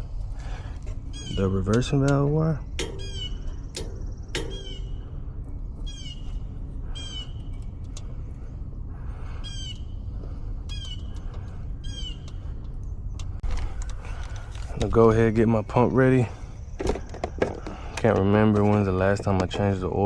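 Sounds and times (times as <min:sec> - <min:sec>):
steady low rumble: 0:00.0 - 0:20.0
bird chirping: 0:01.0 - 0:17.1.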